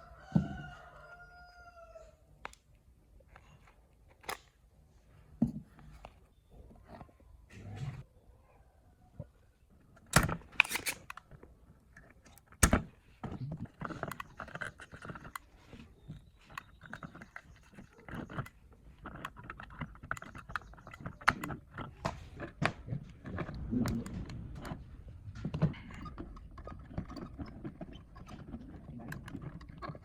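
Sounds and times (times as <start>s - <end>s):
light clicks taps and scraping: 10.0s - 30.0s.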